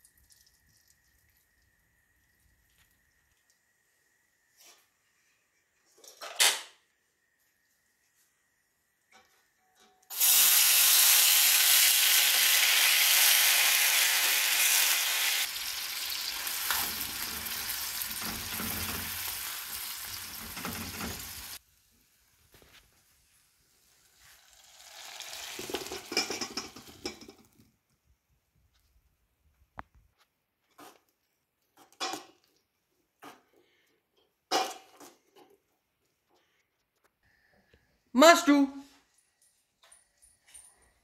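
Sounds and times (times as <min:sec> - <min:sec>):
kibble sizzling in hot oil: 0:10.1 - 0:27.5
spoon stirring and scraping pan: 0:16.4 - 0:21.6, 0:25.6 - 0:27.5, 0:30.6 - 0:35.7.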